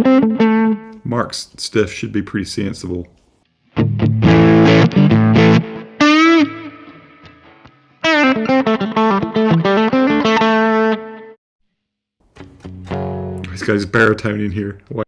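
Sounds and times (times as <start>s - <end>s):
electric guitar notes: 3.8s - 11.3s, 12.3s - 13.8s.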